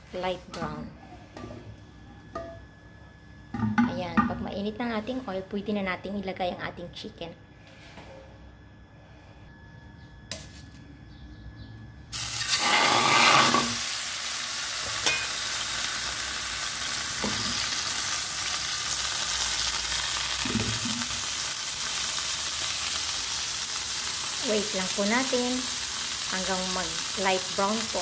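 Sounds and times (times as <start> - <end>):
chicken sizzling in hot oil: 12.1 - 28.0.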